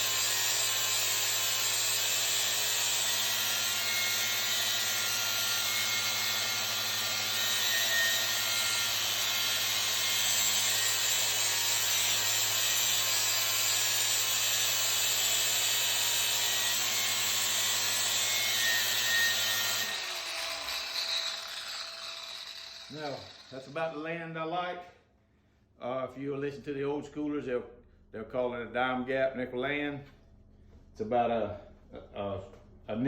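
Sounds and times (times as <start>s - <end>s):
angle grinder grinding pipe: 0.0s - 24.0s.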